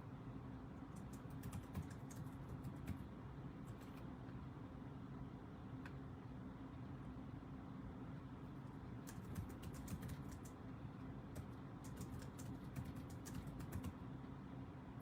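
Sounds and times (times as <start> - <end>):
faint low hum: 0.0 - 15.0
keyboard typing clicks: 0.9 - 3.0, 9.0 - 10.6, 11.3 - 14.0.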